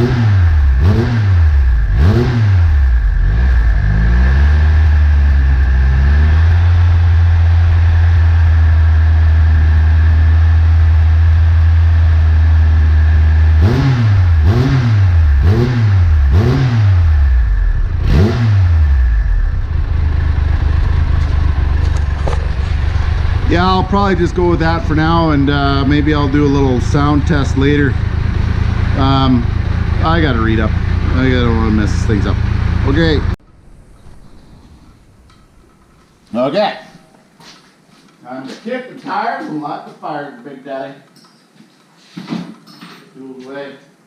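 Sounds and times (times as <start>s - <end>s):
motorcycle engine revving and idling: 0.0s - 35.7s.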